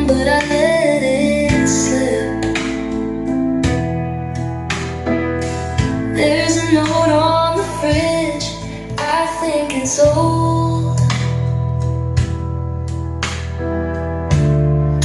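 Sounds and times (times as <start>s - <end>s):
woman singing: 0.0s - 3.0s, 6.1s - 11.5s
guitar and bass: 0.0s - 15.0s.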